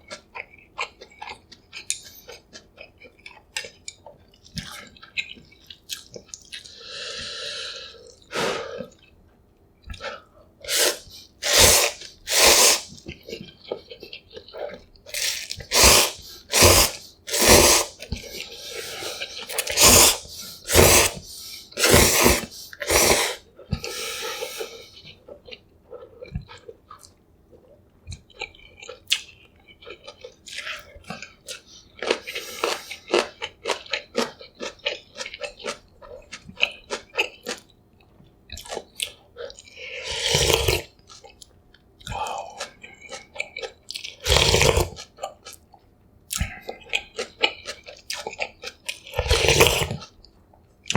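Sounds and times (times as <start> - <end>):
chewing with wet clicks: 0.0 - 6.8, 12.9 - 15.7, 24.9 - 39.8, 40.4 - 50.9
loud noodle slurps: 10.6 - 13.0, 15.1 - 18.0, 18.9 - 24.8, 40.0 - 40.9, 44.2 - 45.0, 49.2 - 50.0.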